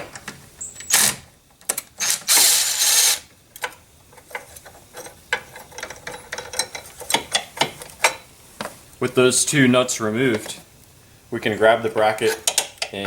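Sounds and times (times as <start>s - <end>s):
ratchet clicking: 2.0s - 3.2s.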